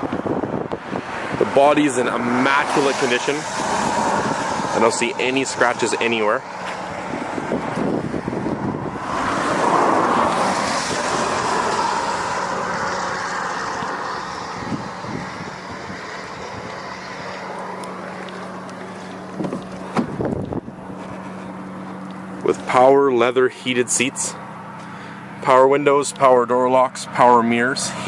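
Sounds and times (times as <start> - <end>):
wind rushing over microphone: 0.0 - 18.0, 19.2 - 21.3.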